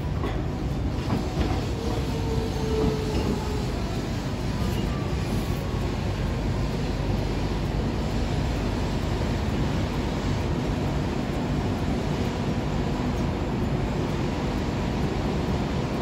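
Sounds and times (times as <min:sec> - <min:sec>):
faint tram squeal: 0:00.0 - 0:06.1
tram wheels rumbling on rail: 0:00.0 - 0:16.0.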